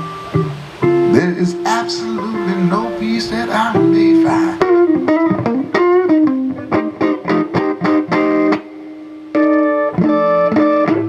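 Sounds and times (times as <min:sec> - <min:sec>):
keyboard: 0:00.0 - 0:07.5
blues band playing: 0:00.0 - 0:11.0
guitar single-note run: 0:00.0 - 0:11.0.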